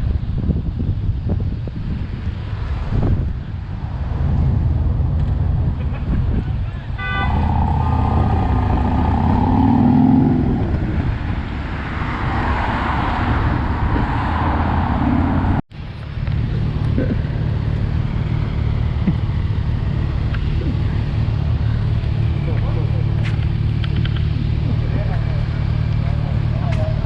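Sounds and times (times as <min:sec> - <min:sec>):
low steady engine hum: 0:00.0 - 0:12.4, 0:13.2 - 0:27.0
vehicle engine running: 0:03.2 - 0:12.0, 0:15.1 - 0:27.0.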